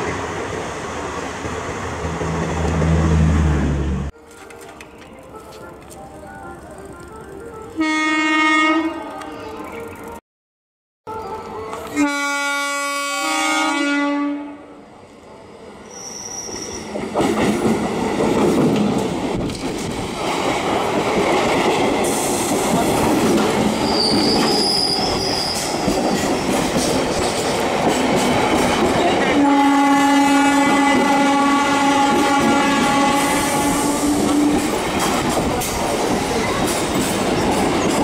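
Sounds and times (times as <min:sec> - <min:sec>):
train horn: 0:07.2 - 0:09.5, 0:11.1 - 0:14.8, 0:29.3 - 0:34.7
high wheel squeals: 0:15.9 - 0:17.0, 0:23.8 - 0:25.7.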